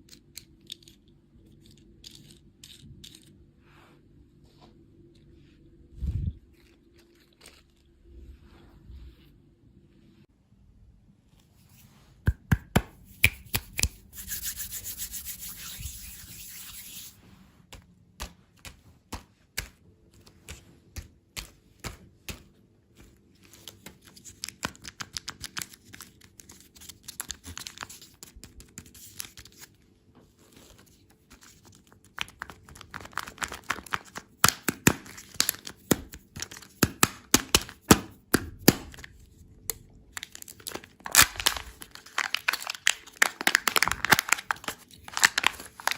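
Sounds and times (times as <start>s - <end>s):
crunching and clicking of candy: 0.0s - 3.4s, 6.5s - 8.1s, 17.8s - 29.7s, 30.6s - 45.9s.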